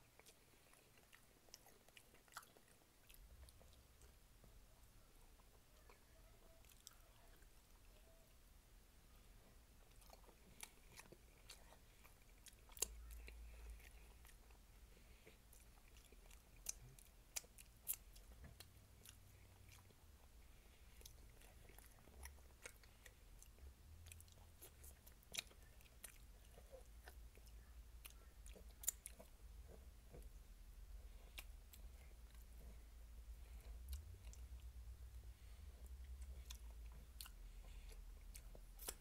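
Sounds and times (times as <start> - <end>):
chewing and lip-smacking: 0.0 - 8.2, 9.4 - 39.0.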